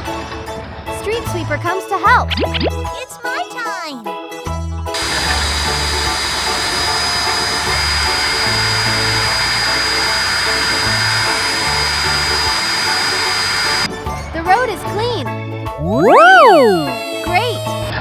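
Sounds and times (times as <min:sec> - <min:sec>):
background music with bass line: 0:01.3 - 0:03.0, 0:04.5 - 0:06.5, 0:10.8 - 0:18.0
machine hiss with high whine: 0:05.0 - 0:13.9.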